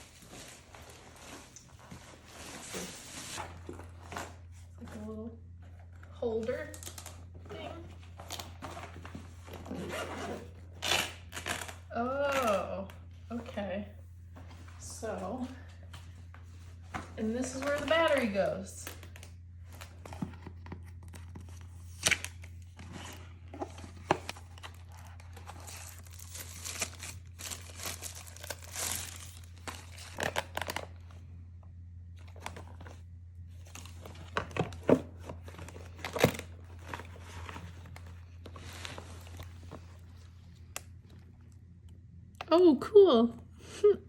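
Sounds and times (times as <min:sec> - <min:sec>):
plastic packaging crinkling: 0:06.7 - 0:09.7, 0:23.8 - 0:31.2, 0:32.2 - 0:41.4.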